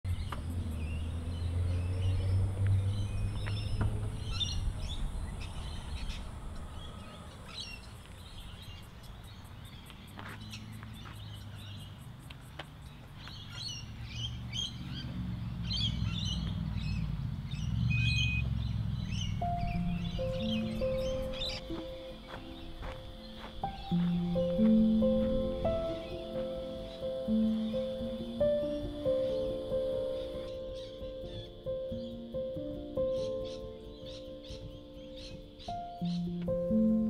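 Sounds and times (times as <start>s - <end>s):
birds chirping: 0.0s - 37.0s
low rumble: 0.1s - 8.8s.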